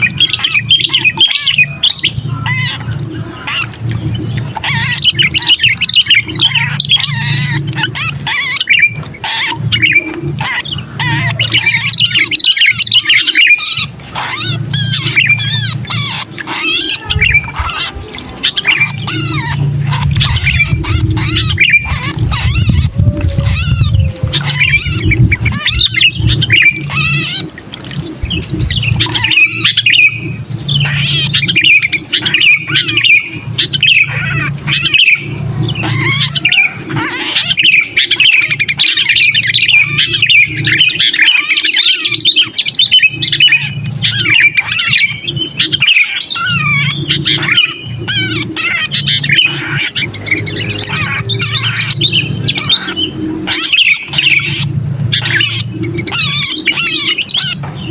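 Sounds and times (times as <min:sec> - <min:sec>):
bulbuls squawking distress calls: 0:00.0 - 0:57.9
low hum: 0:02.0 - 0:36.9.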